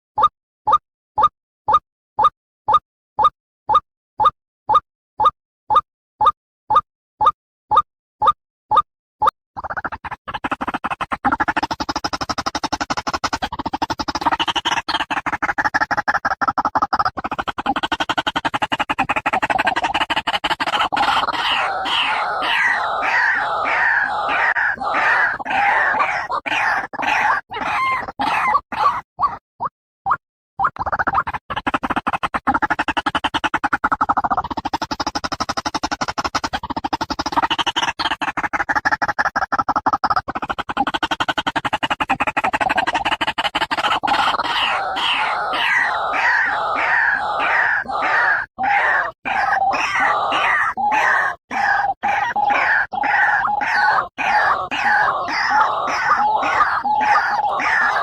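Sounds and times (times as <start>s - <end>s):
waterhen calling harshly: 21.0s - 29.0s, 44.4s - 58.0s.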